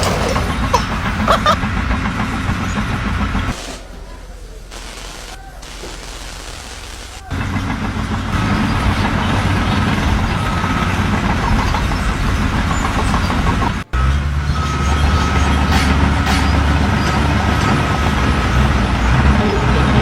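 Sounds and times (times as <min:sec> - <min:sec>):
deep engine rumble: 0:00.0 - 0:20.0
heavy vehicle engine running: 0:00.0 - 0:20.0
thin steady whine: 0:02.6 - 0:09.6.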